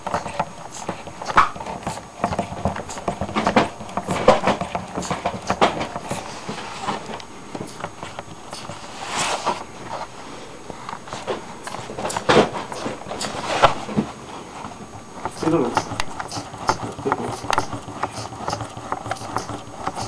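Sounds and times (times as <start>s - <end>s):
pneumatic engine clicking: 0.0s - 7.9s, 15.2s - 20.0s.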